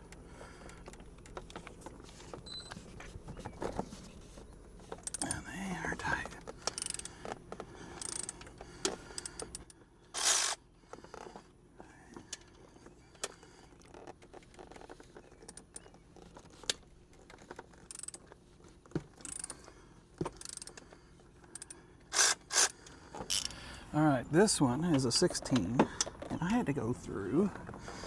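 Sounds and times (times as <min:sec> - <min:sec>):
ratchet wrench and sockets clinking: 0:06.6 - 0:07.3, 0:08.0 - 0:08.5, 0:17.7 - 0:18.3, 0:19.2 - 0:19.6, 0:20.3 - 0:20.8, 0:21.5 - 0:23.6.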